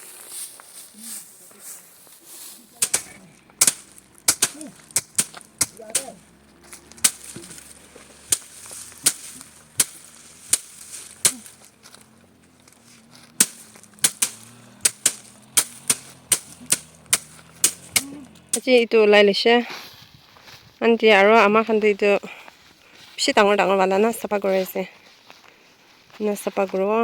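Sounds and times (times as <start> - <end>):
dry plants snapping: 2.6 - 18.8.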